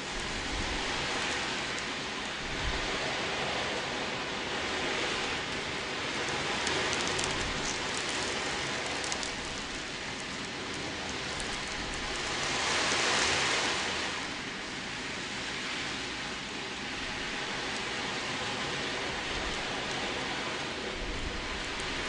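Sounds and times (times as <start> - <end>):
ocean drum beads rolling: 5.2 - 13.7.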